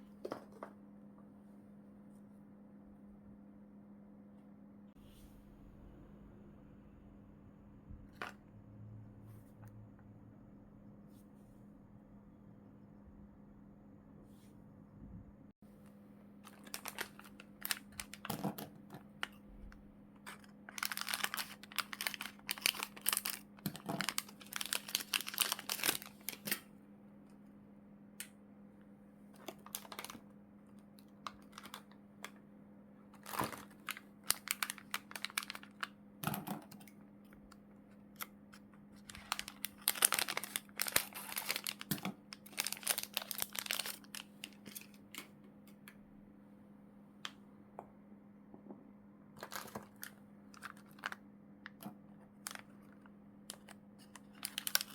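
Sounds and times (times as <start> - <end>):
plastic packaging crinkling: 16.4 - 19.4, 20.2 - 26.6, 29.4 - 32.4, 33.2 - 36.0, 38.1 - 45.3, 49.4 - 54.9.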